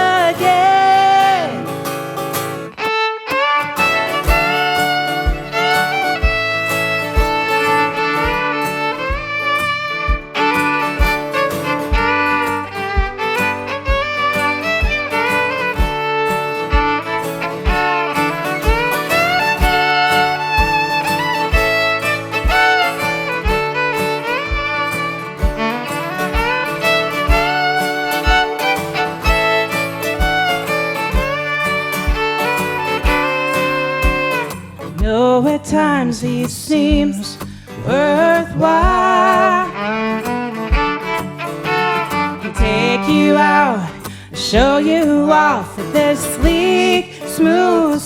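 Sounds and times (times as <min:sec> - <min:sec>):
fiddle melody with sliding notes: 0:00.0 - 0:34.9, 0:38.7 - 0:44.2
held accompanying chords: 0:02.8 - 0:34.7, 0:38.9 - 0:43.7
low beat: 0:03.8 - 0:34.4, 0:40.7 - 0:43.0.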